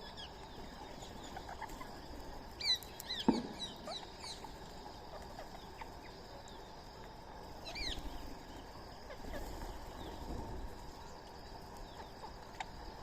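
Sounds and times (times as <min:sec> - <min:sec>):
small animal chirping: 0:00.0 - 0:06.6, 0:07.6 - 0:08.2
sharp knock: 0:03.2 - 0:03.7.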